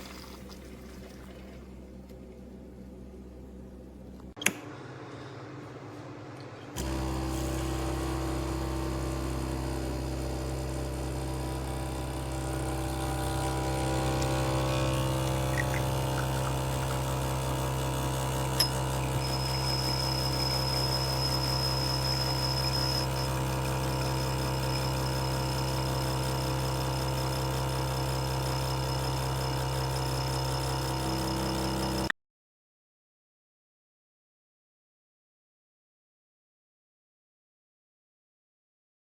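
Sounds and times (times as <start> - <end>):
espresso machine pump hum: 4.0 - 32.1.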